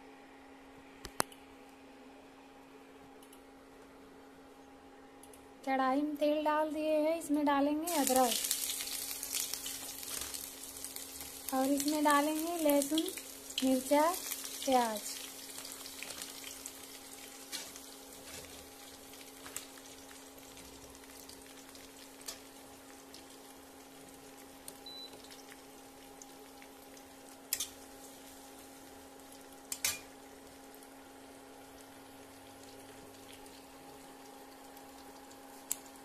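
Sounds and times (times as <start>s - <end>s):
vegetables sizzling in hot oil: 7.9s - 36.0s.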